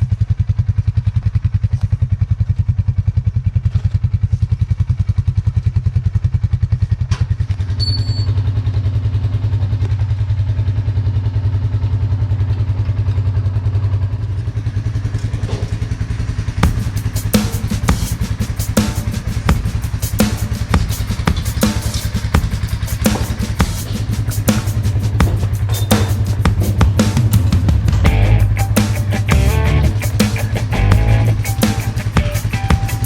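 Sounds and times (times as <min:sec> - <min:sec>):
small engine running: 0:00.0 - 0:33.0
drum music: 0:16.6 - 0:33.0.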